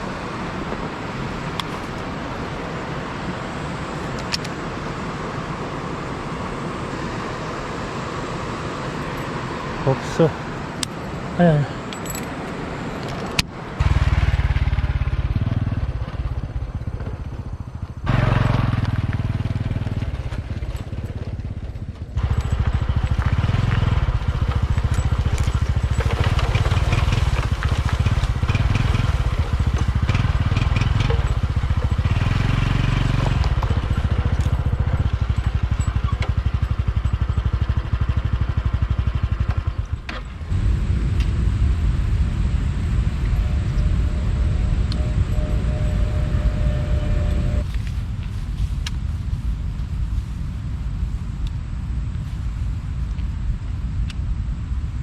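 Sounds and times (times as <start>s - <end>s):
wind rumble on microphone: 0.0s - 55.0s
small motorcycle engine running: 13.6s - 48.7s.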